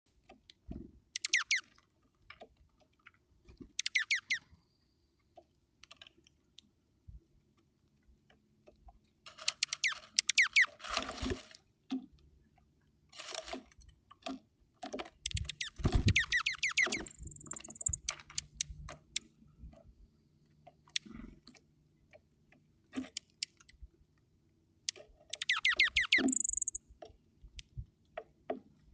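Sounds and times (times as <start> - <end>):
bird pecking seed clicks: 15.2 - 19.2, 24.9 - 26.8.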